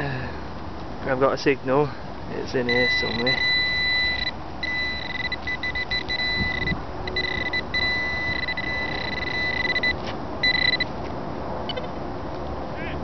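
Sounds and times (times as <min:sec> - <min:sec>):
metal detector high beep: 0:02.7 - 0:10.9
wind buffeting microphone: 0:05.5 - 0:09.8.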